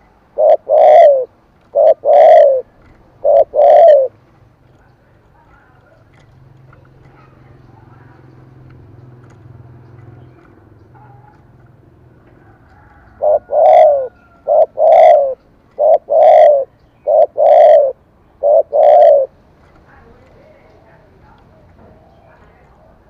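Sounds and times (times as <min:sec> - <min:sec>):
dove cooing: 0:00.0 - 0:04.2, 0:06.8 - 0:19.4.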